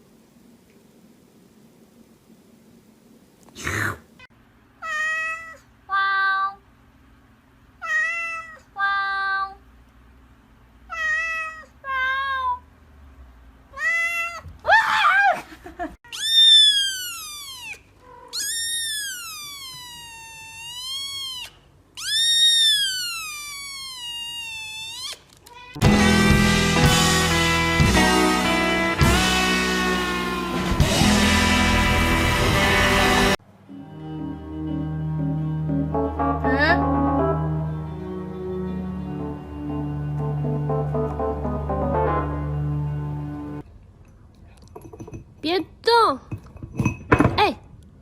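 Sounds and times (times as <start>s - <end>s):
cat meowing: 4.8s - 5.7s, 7.8s - 8.7s, 10.9s - 12.6s, 13.7s - 14.5s, 16.1s - 25.8s.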